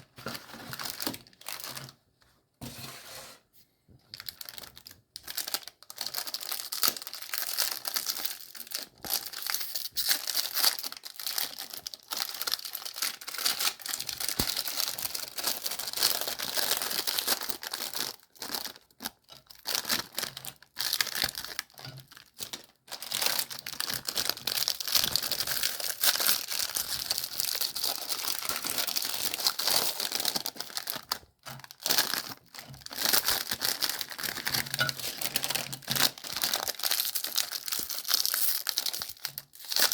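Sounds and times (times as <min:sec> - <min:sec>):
meat grinder crunching cookies: 0:32.2 - 0:39.9.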